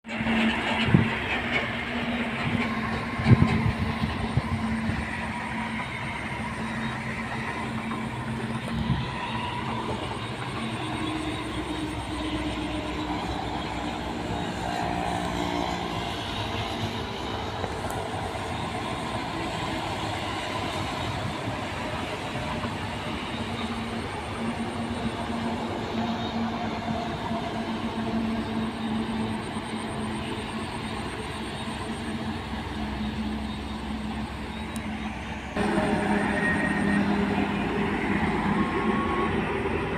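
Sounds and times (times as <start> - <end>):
trucks driving past: 0.1 - 26.8, 29.2 - 39.9.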